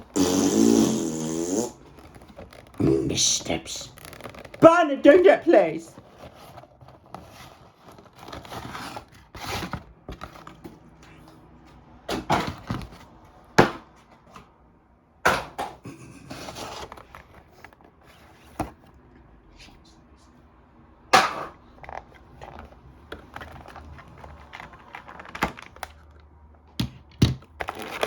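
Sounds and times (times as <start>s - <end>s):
cardboard and plastic rustling: 1.8s - 11.5s, 12.1s - 13.3s, 16.2s - 19.0s, 21.6s - 28.0s.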